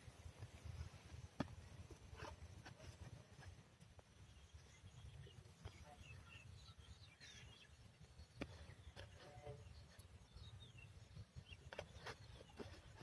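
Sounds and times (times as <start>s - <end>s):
faint bird chirps: 3.4s - 13.0s.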